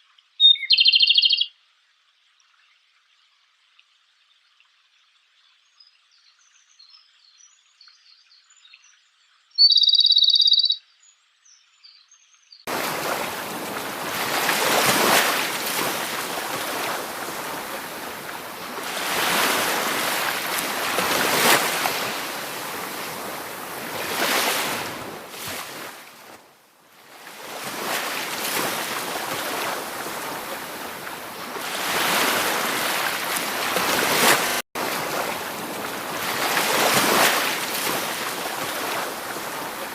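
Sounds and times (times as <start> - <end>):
high-pitched bird call: 0.4 - 1.5, 9.6 - 10.8
rushing water: 12.7 - 39.9.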